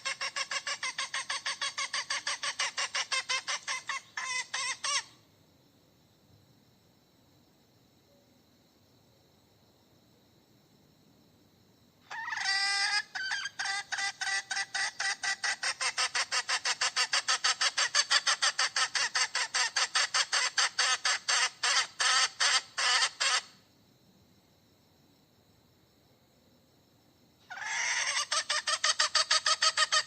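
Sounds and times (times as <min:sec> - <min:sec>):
hen cackling: 0:00.0 - 0:05.2, 0:12.0 - 0:23.6, 0:27.4 - 0:30.0.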